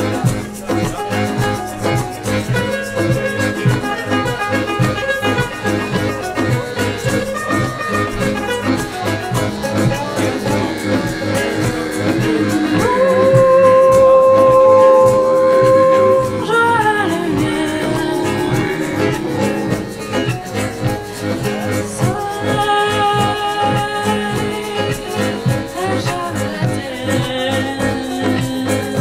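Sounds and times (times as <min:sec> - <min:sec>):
band music: 0:00.0 - 0:29.0
person singing: 0:09.9 - 0:20.7, 0:21.4 - 0:29.0.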